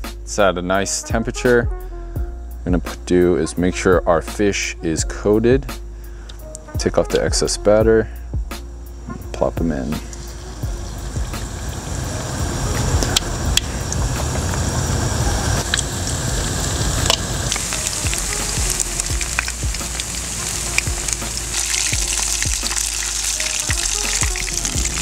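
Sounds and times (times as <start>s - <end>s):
fish deep-frying in hot oil: 10.0s - 25.0s.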